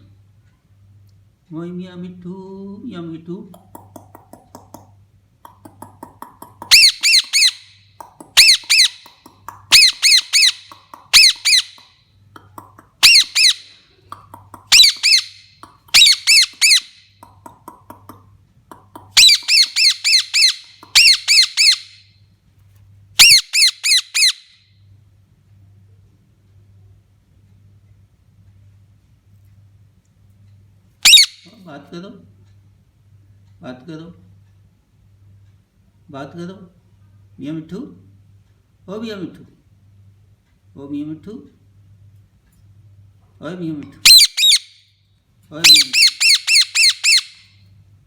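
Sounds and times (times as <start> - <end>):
soft parrot calls: 5.5 - 22.0, 23.2 - 24.5, 31.0 - 31.7, 44.0 - 44.8, 45.6 - 47.5
parrot squawking: 5.6 - 11.8, 12.9 - 17.0, 18.8 - 22.0, 23.2 - 24.5, 31.0 - 31.6, 44.0 - 44.8, 45.6 - 47.5.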